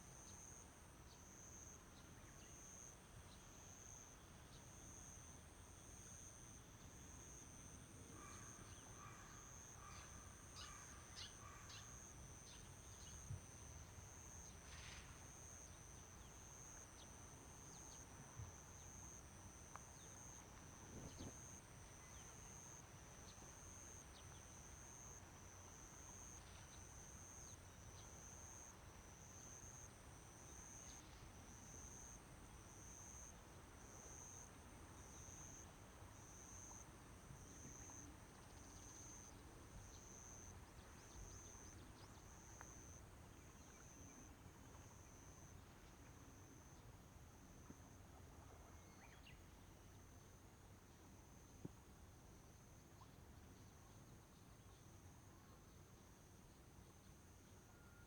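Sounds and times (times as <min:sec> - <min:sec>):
insects chirping: 0:36.2 - 0:44.3.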